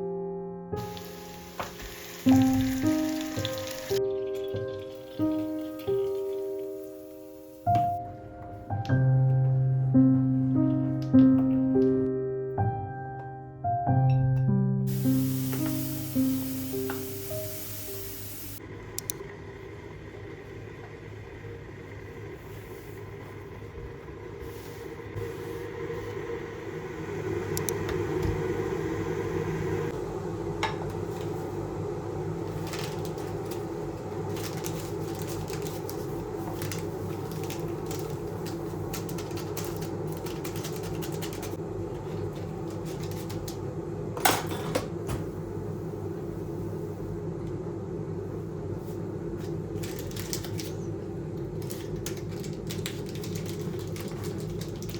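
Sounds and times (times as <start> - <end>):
kitchen appliance motor hum: 0.8 - 7.6, 15.2 - 44.1
clatter of kitchen things: 0.9 - 6.6, 34.3 - 45.2, 49.4 - 54.9.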